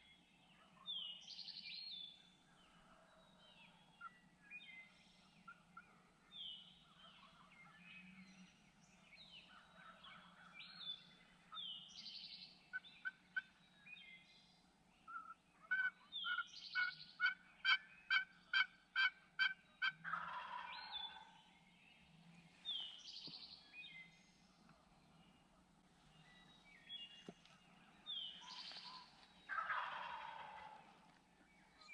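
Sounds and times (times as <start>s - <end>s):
small songbirds chirping: 0.0s - 31.9s
turkey gobble: 15.1s - 21.4s, 29.5s - 30.9s
turkey yelping: 15.2s - 21.2s, 29.5s - 30.8s.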